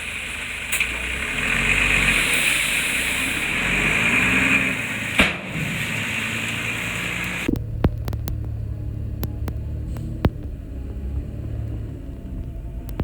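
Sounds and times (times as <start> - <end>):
diesel engine running with hiss: 0.0 - 7.6, 8.5 - 12.8.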